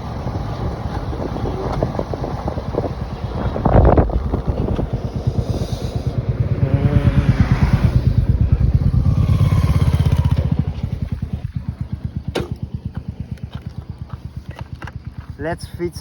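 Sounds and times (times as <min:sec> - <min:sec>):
rush of noise: 0:00.0 - 0:12.0
motorcycle engine running: 0:00.0 - 0:16.0.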